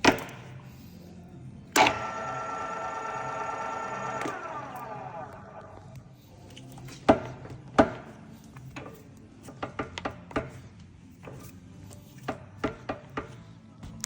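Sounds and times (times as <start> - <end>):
low steady hum: 0.5 - 6.7.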